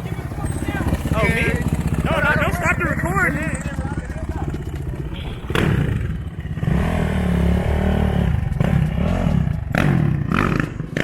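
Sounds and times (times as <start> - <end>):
dirt bike engine revving: 0.1 - 11.0.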